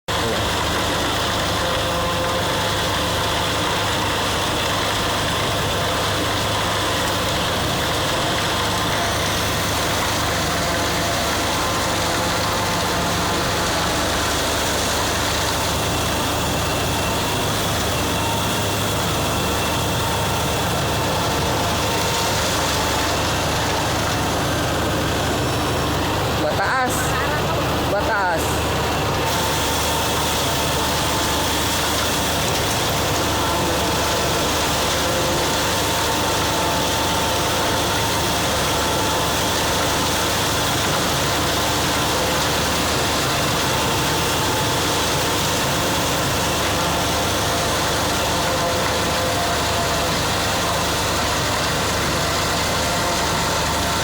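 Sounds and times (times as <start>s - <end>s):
harvester engine and machinery: 0.0s - 54.0s.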